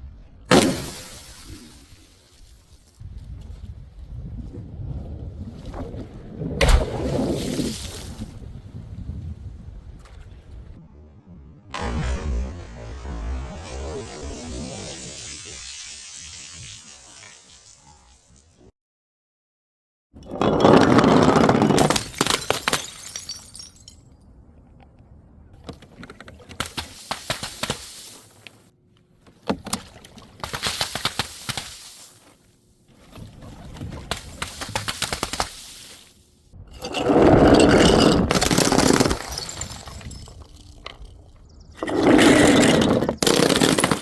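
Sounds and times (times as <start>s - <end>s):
glass bottles shattering: 20.2s - 24.0s, 36.7s - 41.2s, 41.8s - 44.0s.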